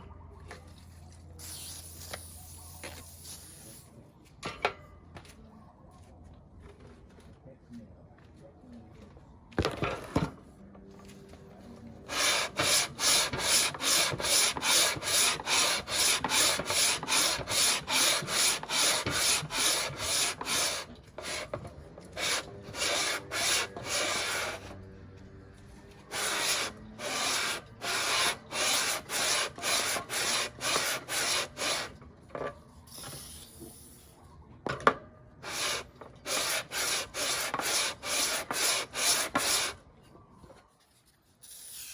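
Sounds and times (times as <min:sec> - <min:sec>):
metal rasping on sandpaper: 0:12.1 - 0:24.7, 0:26.1 - 0:32.0, 0:35.4 - 0:39.8.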